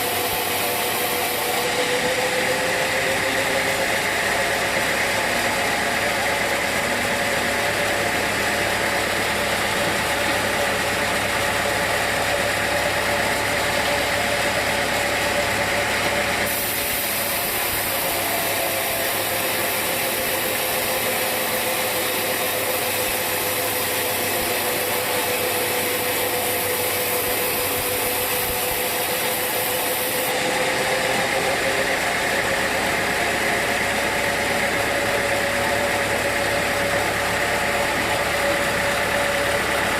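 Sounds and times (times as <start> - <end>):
sawmill machinery humming: 0.0 - 39.9
high hiss: 16.5 - 23.4.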